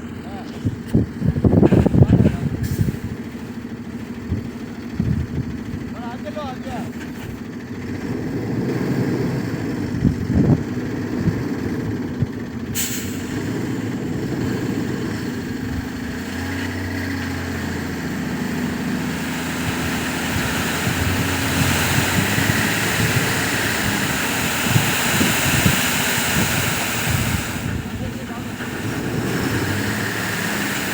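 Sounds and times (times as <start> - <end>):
diesel truck engine running: 0.0 - 30.9
air hiss: 12.8 - 13.4
broad rushing noise: 18.4 - 30.9.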